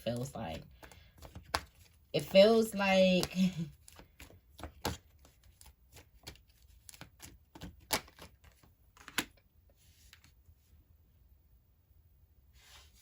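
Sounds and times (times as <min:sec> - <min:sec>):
cards sliding rustle: 0:00.4 - 0:02.0, 0:03.2 - 0:10.4
cards snapping and tapping: 0:00.8 - 0:02.0, 0:03.2 - 0:09.3.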